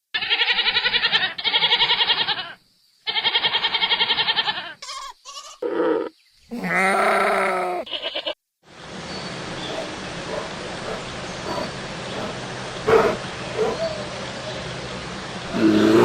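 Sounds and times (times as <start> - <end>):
farm animals bleating: 0.1 - 8.4.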